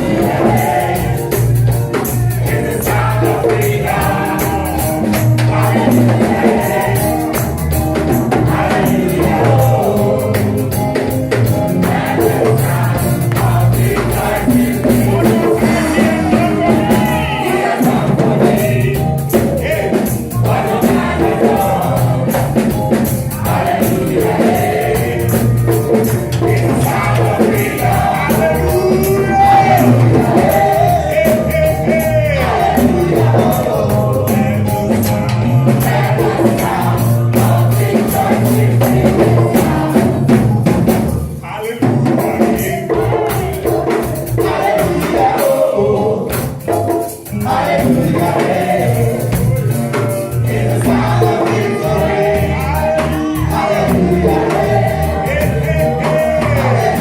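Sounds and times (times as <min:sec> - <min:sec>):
drums beat: 0:00.0 - 0:57.0
gospel singers with band: 0:00.0 - 0:57.0
tambourine: 0:42.0 - 0:57.0.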